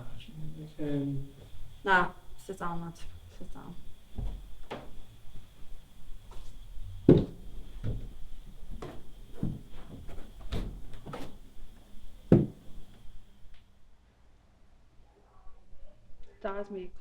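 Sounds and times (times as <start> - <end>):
faint high whine: 0.0 - 14.3
knocks and thumps: 1.3 - 13.1.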